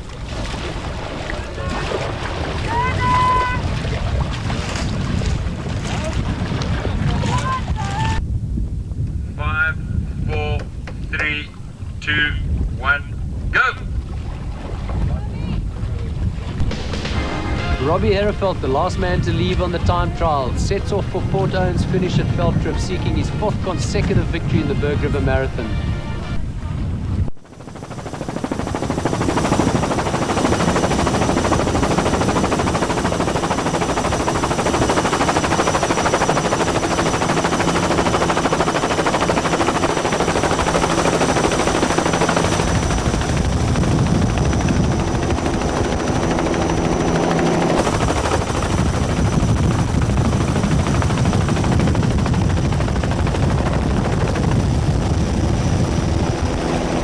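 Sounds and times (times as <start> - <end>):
helicopter rotor chop: 1.4 - 8.2, 16.6 - 57.0
high whine: 16.6 - 26.7, 27.4 - 57.0.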